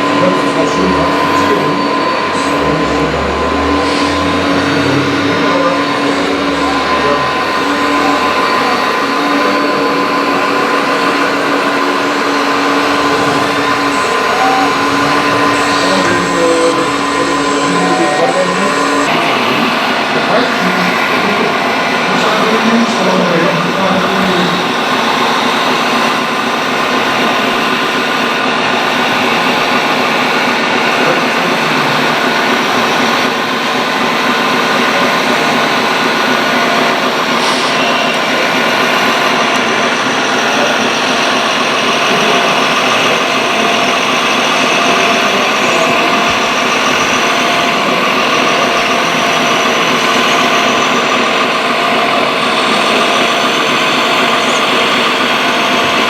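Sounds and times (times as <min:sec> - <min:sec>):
model excavator motors whining: 0:00.0 - 0:56.0.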